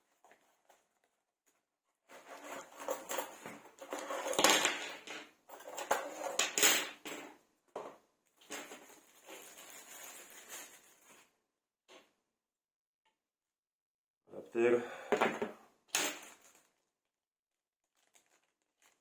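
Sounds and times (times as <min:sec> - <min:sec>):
clatter of hard pieces: 0:02.8 - 0:07.3
packaging rustling: 0:08.6 - 0:11.2, 0:17.9 - 0:19.0.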